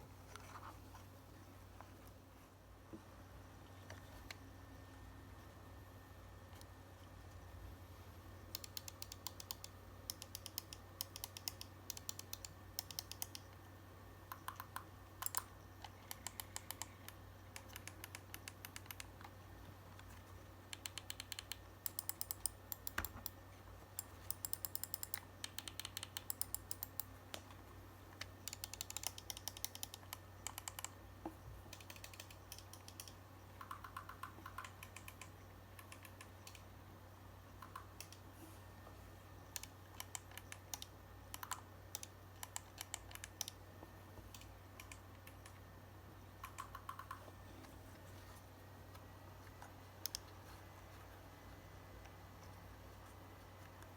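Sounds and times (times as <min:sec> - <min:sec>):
mouse buttons clicking rapidly: 0:08.4 - 0:13.6, 0:14.2 - 0:36.8, 0:37.5 - 0:38.3, 0:39.4 - 0:45.7, 0:46.4 - 0:47.4, 0:48.9 - 0:50.6.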